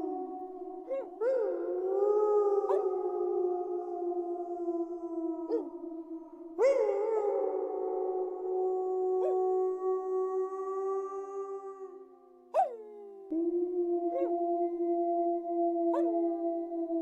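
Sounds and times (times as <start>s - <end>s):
wolves howling: 0.0s - 17.0s.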